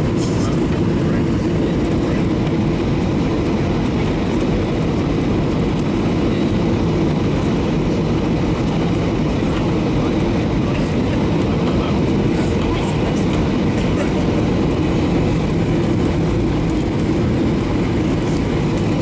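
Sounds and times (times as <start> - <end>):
airliner cabin engine rumble: 0.0 - 19.0.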